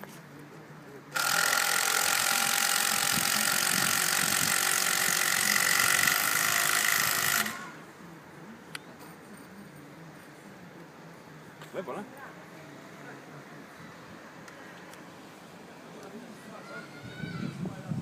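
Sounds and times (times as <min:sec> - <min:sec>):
machine whirring with whine: 0:01.2 - 0:08.0.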